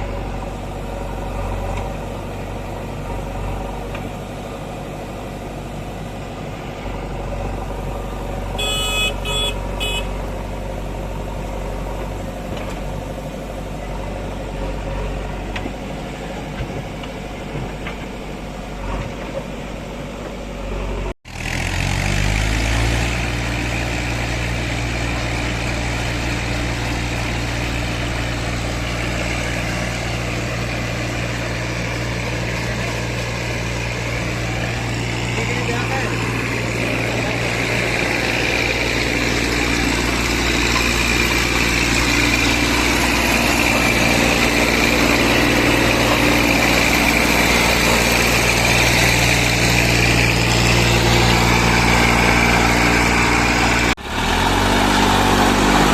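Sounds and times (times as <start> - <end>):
diesel engines running: 0.0 - 55.9
engine revving: 6.8 - 12.9, 21.3 - 55.9.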